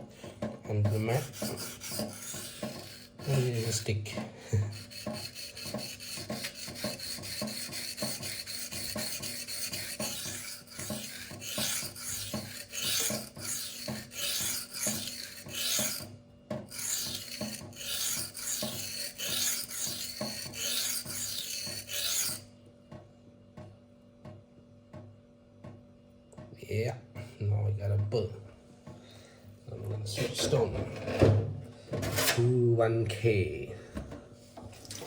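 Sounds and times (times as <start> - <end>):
knife rasping on sharpening stone: 0.9 - 3.9, 4.6 - 16.1, 16.7 - 22.5.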